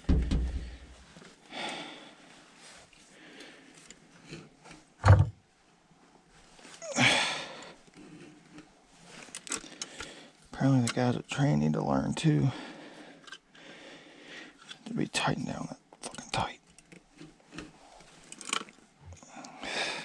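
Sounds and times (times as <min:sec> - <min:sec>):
hard knock on metal fitting: 0:00.1 - 0:00.7
person exhaling heavily: 0:19.3 - 0:20.0.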